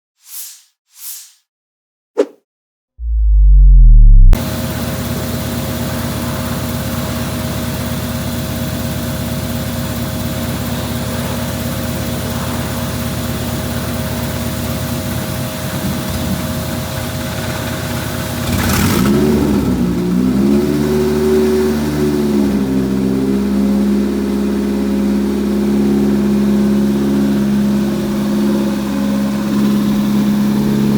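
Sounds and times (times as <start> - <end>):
car engine starting and idling: 3.0 - 7.0.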